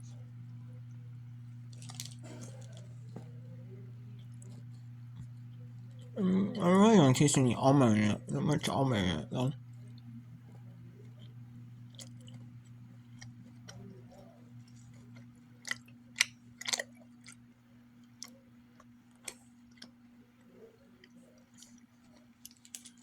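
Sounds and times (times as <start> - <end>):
steady low hum: 0.0 - 23.0
person chewing crunchy bar: 1.7 - 3.2, 4.1 - 7.1, 11.1 - 23.0.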